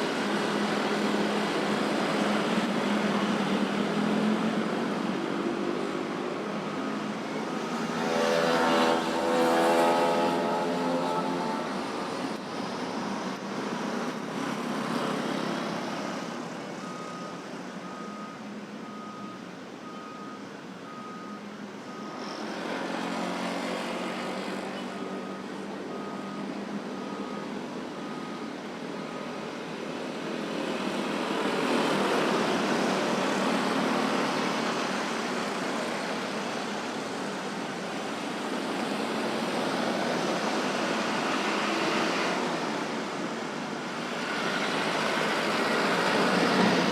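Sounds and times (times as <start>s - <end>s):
road traffic: 0.0s - 46.9s
reversing alarm beeping: 6.6s - 12.0s, 16.8s - 23.3s, 24.8s - 29.6s.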